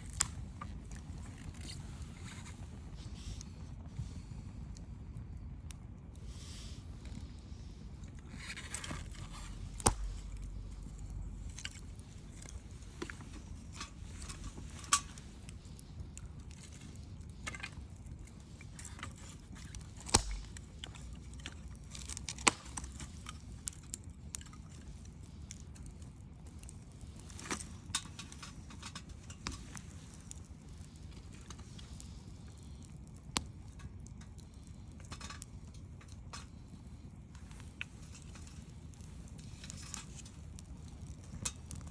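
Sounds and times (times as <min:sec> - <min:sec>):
bonfire crackling and popping: 0:00.0 - 0:41.9
low rumble: 0:07.6 - 0:14.2.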